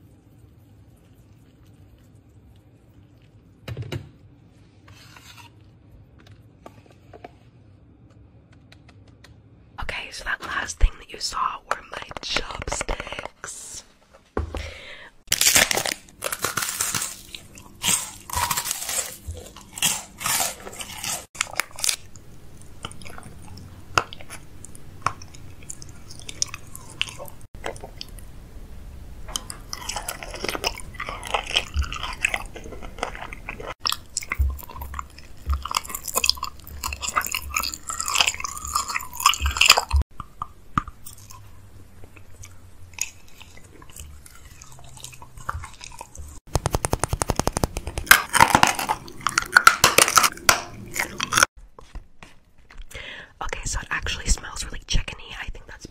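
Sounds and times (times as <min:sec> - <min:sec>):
plastic wrapper crinkling: 0:15.3 - 0:22.2, 0:45.7 - 0:50.4
chewing gummy candies: 0:15.3 - 0:28.3, 0:29.3 - 0:51.5.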